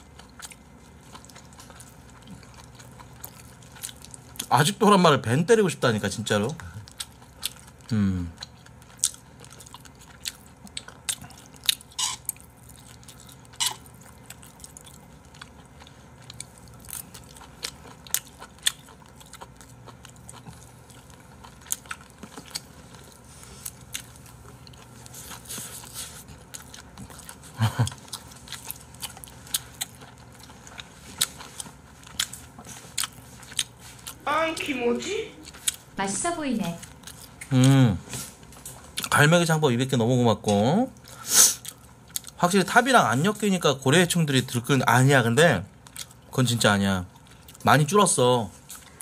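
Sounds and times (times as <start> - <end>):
wet chewing with mouth clicks: 0.0 - 4.6, 6.4 - 34.2, 35.4 - 36.0, 36.8 - 39.3, 40.4 - 42.4, 45.7 - 46.5.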